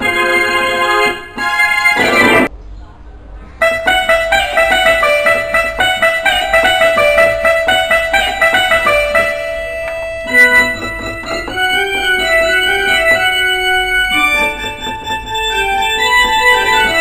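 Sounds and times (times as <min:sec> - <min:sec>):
keyboard plucked-string notes: 0:03.6 - 0:17.0
steady held keyboard note: 0:03.6 - 0:17.0.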